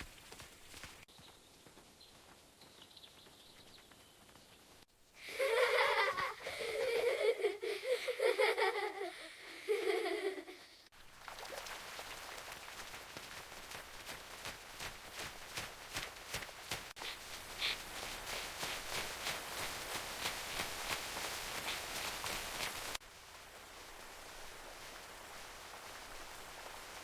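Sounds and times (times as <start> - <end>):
children laughing: 5.2 - 10.9
steady hiss: 11.8 - 27.0.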